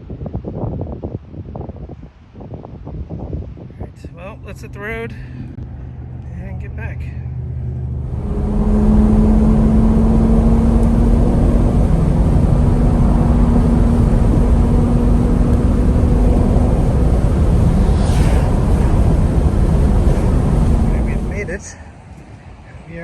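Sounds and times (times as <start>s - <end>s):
road rumble: 0.0s - 23.0s
car engine cruising: 4.2s - 23.0s
falling whoosh: 7.8s - 21.7s.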